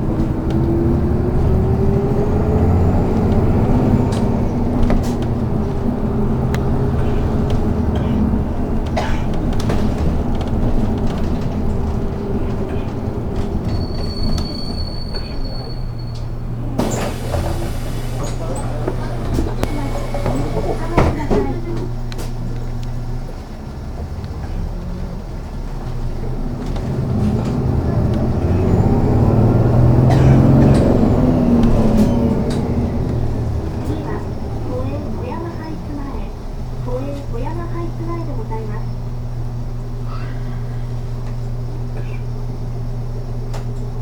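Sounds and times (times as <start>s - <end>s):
bus engine and road rumble: 0.0s - 44.0s
high brake squeal: 13.6s - 18.7s, 30.3s - 33.1s.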